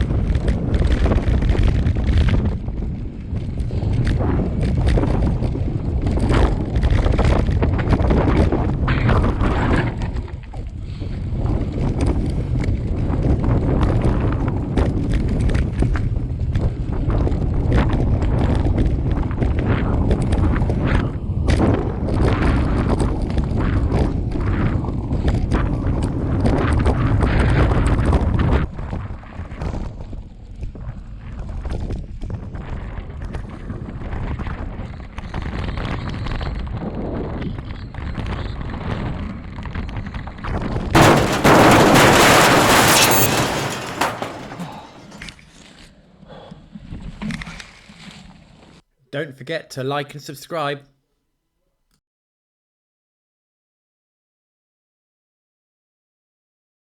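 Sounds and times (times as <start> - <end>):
wind buffeting microphone: 0.0 - 43.7
knocks and rattles: 41.0 - 45.3.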